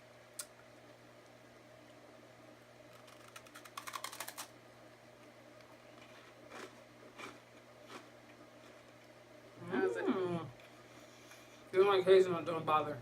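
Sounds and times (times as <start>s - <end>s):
wafer snack wrapper crackling: 2.9s - 4.5s.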